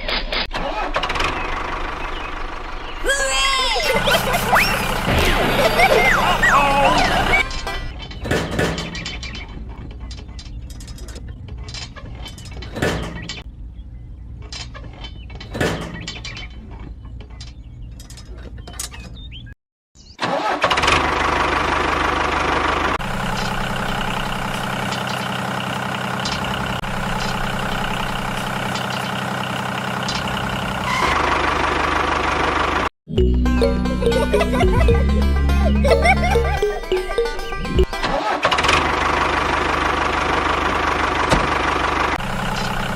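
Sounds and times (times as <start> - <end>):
mini tractor engine running: 3.8 - 7.8, 20.3 - 30.8, 37.9 - 42.9.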